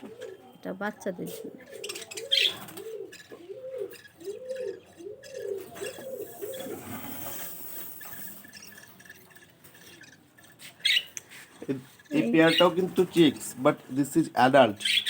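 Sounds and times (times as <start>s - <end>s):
bird cooing: 0.0s - 8.7s.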